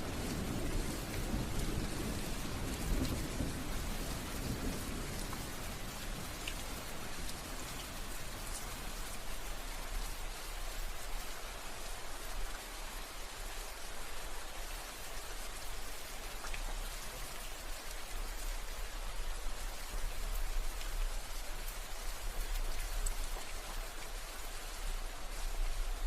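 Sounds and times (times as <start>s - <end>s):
raindrops ticking on a surface: 0.0s - 26.0s
steady rain hiss: 0.0s - 26.0s.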